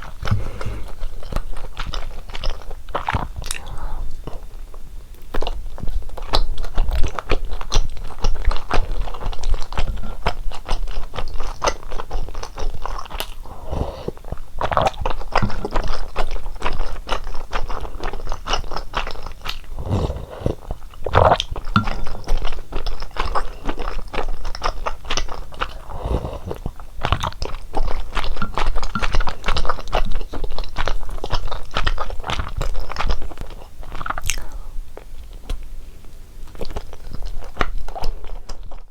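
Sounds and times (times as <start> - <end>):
wet chewing and mouth clicks: 0.0 - 38.9.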